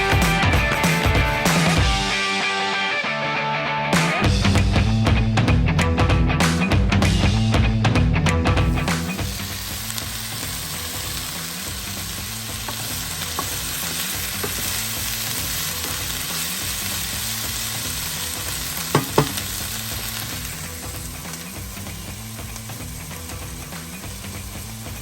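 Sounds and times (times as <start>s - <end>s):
dumplings sizzling in a skillet: 8.6s - 25.0s
sharp knocks: 18.9s - 19.4s.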